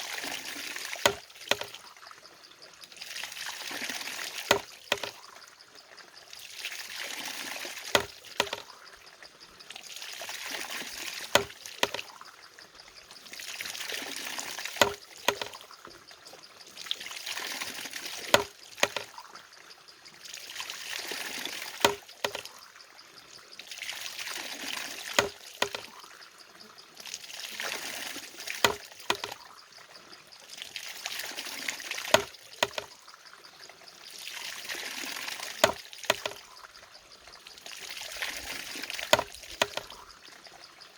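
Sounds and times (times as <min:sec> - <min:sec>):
pouring trickling water: 0:00.0 - 0:40.9
sharp wooden knock: 0:01.0 - 0:01.7, 0:04.5 - 0:05.2, 0:07.9 - 0:08.6, 0:11.3 - 0:12.0, 0:14.8 - 0:15.5, 0:18.3 - 0:19.1, 0:21.8 - 0:22.4, 0:25.2 - 0:25.9, 0:28.6 - 0:29.3, 0:32.1 - 0:32.9, 0:35.6 - 0:36.4, 0:39.1 - 0:39.9.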